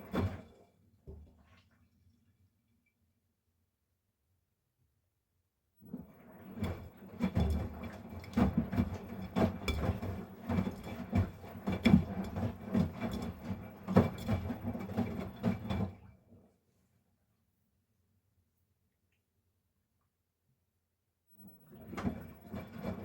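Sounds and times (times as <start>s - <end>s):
knocks and rattles in drum: 6.6s - 16.0s.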